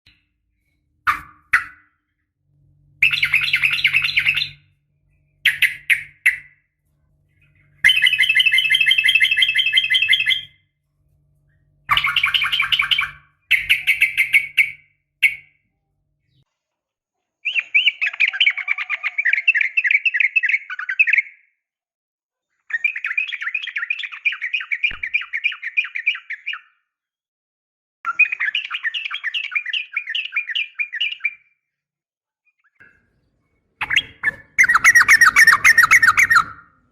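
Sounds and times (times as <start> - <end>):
bird rapid chattering call: 33.8 - 36.7.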